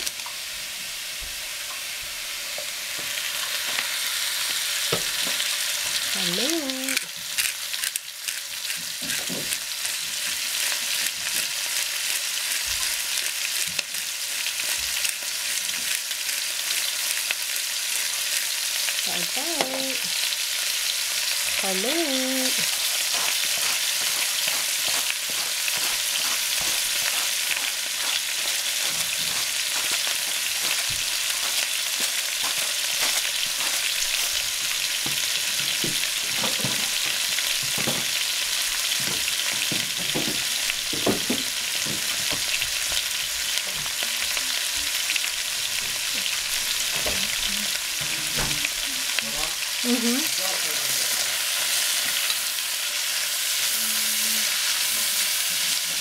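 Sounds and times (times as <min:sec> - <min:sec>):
cabbage sizzling in oil: 0:00.0 - 0:56.0
wooden spatula stirring: 0:22.6 - 0:34.4.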